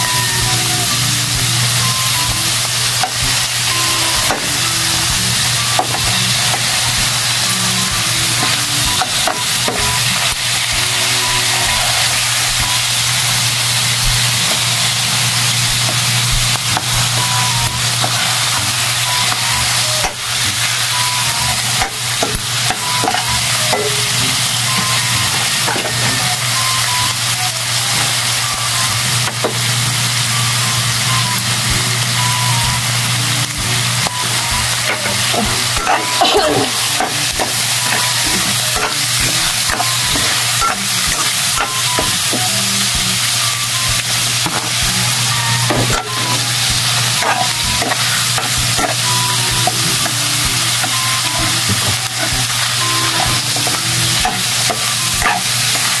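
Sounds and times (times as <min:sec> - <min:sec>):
meat sizzling in a wok: 0:00.0 - 0:56.0
metal utensils scraping a pan: 0:45.7 - 0:51.0, 0:51.6 - 0:56.0.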